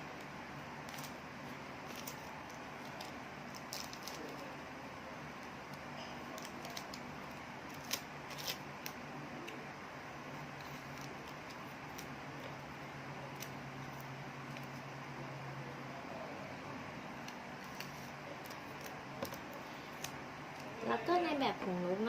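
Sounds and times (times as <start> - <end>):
scissors snipping paper: 1.8 - 4.5, 5.4 - 9.6.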